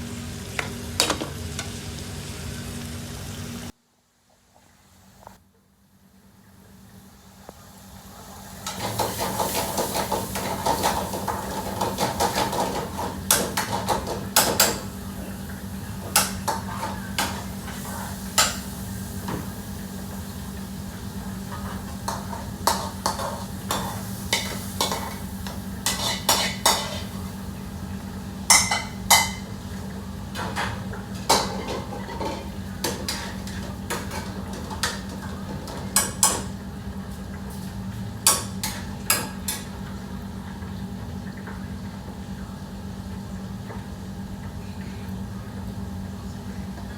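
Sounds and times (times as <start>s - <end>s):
food sizzling in a pan: 0.0s - 3.7s, 6.2s - 40.4s
metal utensils clanking on pots: 0.6s - 1.7s, 8.6s - 14.9s, 16.0s - 18.7s, 21.5s - 27.2s, 28.5s - 29.5s, 30.4s - 36.5s, 38.2s - 39.8s.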